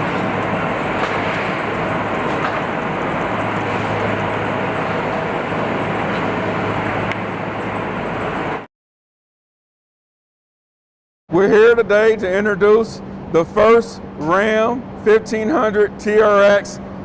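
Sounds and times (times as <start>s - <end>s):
factory machinery din: 0.0s - 8.7s.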